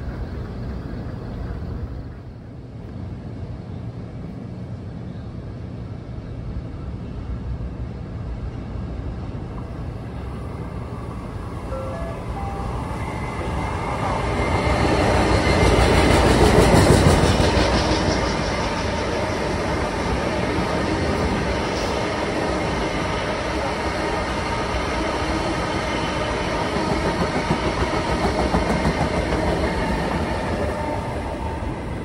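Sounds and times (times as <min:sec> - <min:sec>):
train passing: 0:00.0 - 0:32.0.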